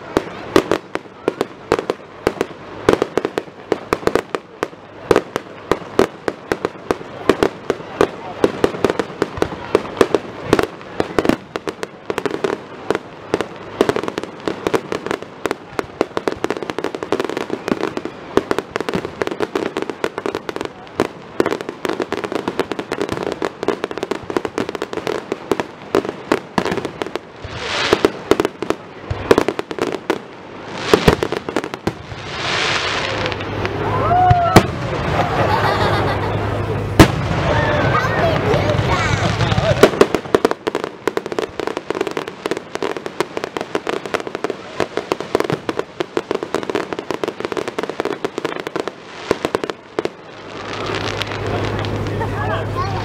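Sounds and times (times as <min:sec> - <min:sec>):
rushing hiss: 0:00.0 - 0:35.5
fireworks bangs and crackles: 0:00.0 - 0:53.0.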